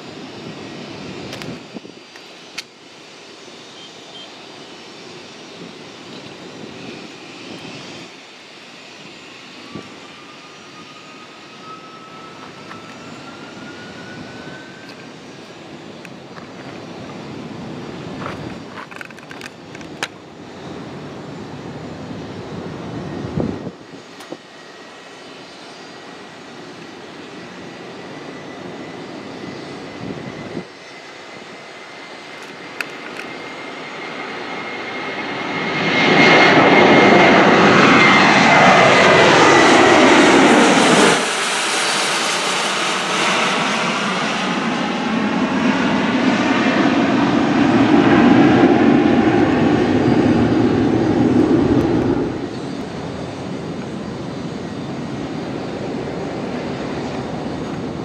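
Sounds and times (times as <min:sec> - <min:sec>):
jet engines passing: 0:00.0 - 0:58.0.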